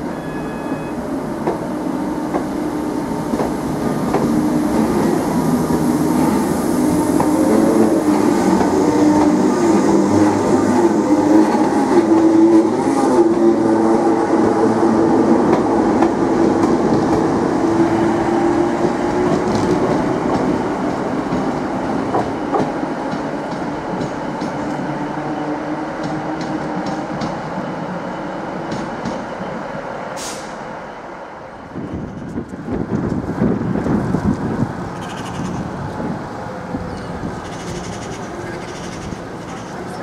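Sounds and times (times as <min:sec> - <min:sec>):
electric train hum: 0:00.0 - 0:40.0
short hiss: 0:30.2 - 0:30.6.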